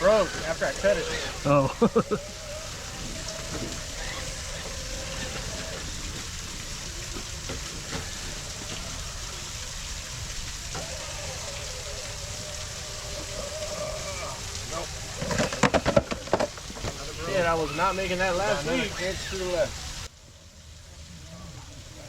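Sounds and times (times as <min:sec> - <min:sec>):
electric motor whine: 0:00.0 - 0:17.3
outdoor hiss: 0:00.0 - 0:22.0
faint clicks: 0:00.1 - 0:17.2.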